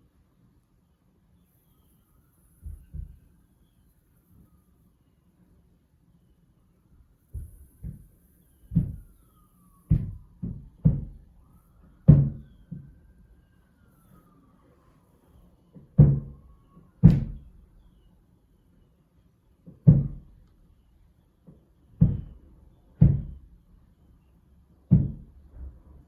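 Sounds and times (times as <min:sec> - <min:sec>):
faint knocks: 0:02.6 - 0:03.3, 0:07.2 - 0:09.2, 0:09.9 - 0:13.0
heavy thumps through a wall: 0:02.6 - 0:03.3, 0:07.2 - 0:09.2, 0:09.9 - 0:13.0, 0:15.8 - 0:17.7, 0:19.6 - 0:20.5, 0:22.0 - 0:23.6, 0:24.9 - 0:25.9.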